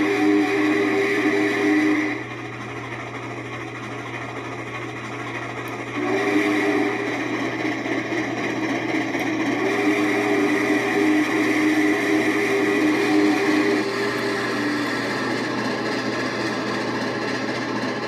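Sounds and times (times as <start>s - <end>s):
steam locomotive chime whistle: 0.0s - 2.5s, 5.9s - 8.2s, 9.3s - 17.7s.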